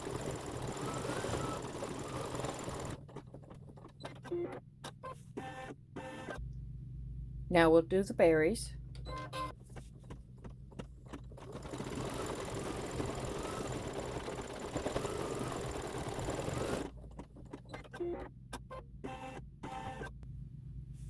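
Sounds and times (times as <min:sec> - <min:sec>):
embroidery machine stitching: 0:00.0 - 0:04.6, 0:10.7 - 0:18.3.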